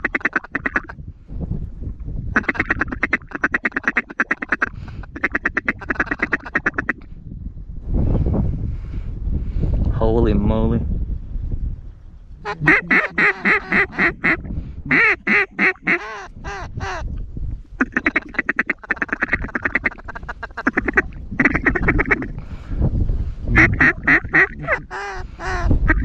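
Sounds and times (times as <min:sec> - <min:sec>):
duck quacking: 0:00.0 - 0:00.9, 0:02.4 - 0:07.0, 0:12.4 - 0:17.0, 0:17.8 - 0:22.4, 0:23.6 - 0:26.0
wind on microphone: 0:00.0 - 0:26.0.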